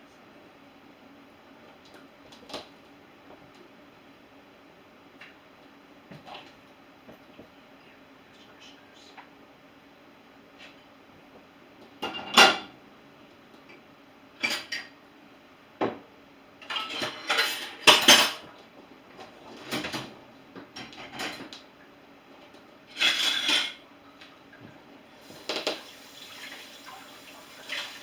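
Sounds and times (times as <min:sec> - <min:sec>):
dishes clattering into dishwasher: 0:12.0 - 0:12.8, 0:14.4 - 0:15.0, 0:16.6 - 0:18.5, 0:19.5 - 0:21.6, 0:22.9 - 0:23.8, 0:25.4 - 0:26.0.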